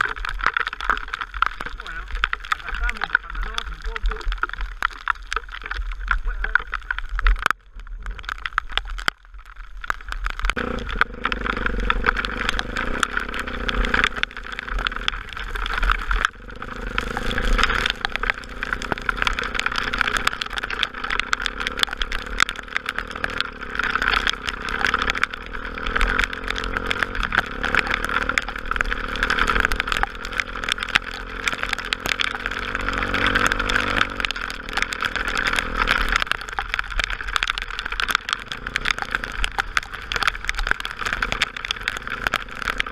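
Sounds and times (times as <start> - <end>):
motorcycle engine running: 10.6 - 36.6, 38.1 - 42.9.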